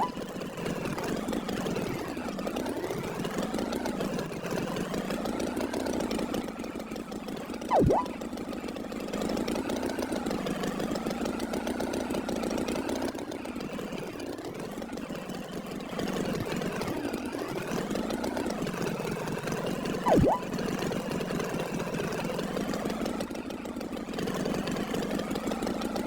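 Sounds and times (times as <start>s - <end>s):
sharp downward sweeping sound: 7.7s - 8.1s, 20.1s - 20.5s.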